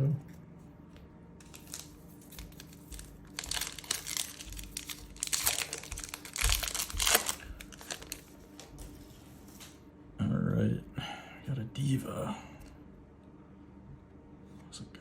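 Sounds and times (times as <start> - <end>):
wrapper crinkling: 1.4 - 9.0.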